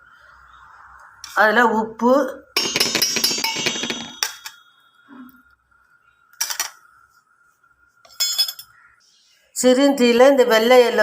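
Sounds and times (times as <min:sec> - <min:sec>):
metal utensils clinking on bowls: 0:02.6 - 0:04.7, 0:08.1 - 0:08.8
ringing clatter: 0:02.6 - 0:04.7.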